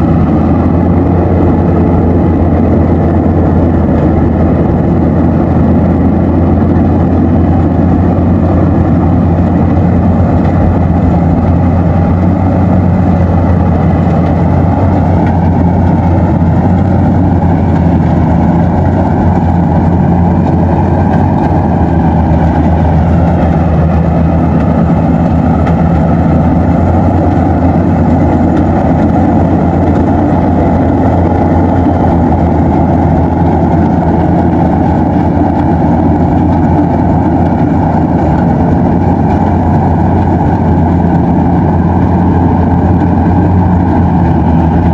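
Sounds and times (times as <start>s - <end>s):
combine harvester engine drone: 0.0s - 44.9s.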